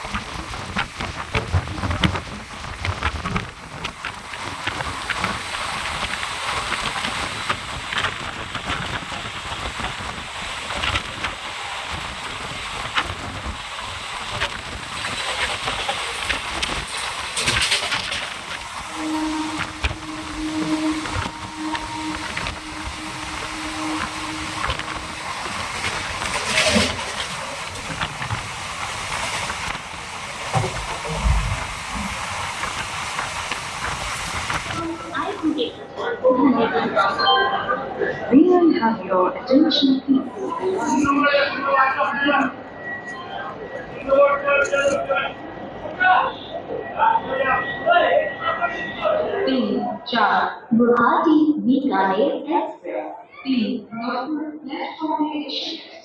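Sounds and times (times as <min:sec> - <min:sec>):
train clanks: 0:00.0 - 0:35.7
steady rushing noise: 0:00.0 - 0:35.9
train rumbling: 0:00.0 - 0:50.0.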